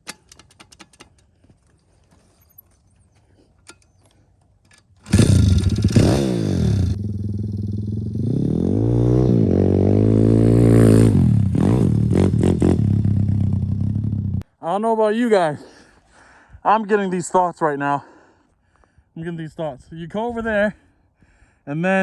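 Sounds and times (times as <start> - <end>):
pit bike engine revving: 5.0 - 14.4.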